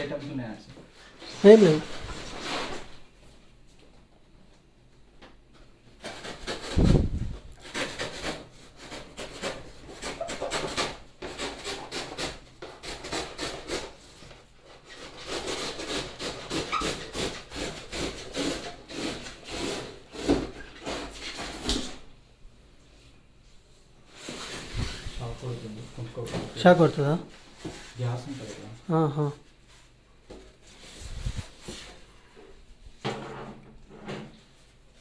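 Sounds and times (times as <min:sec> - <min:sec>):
packaging scraping and rubbing: 0:06.0 - 0:22.0, 0:24.1 - 0:28.7.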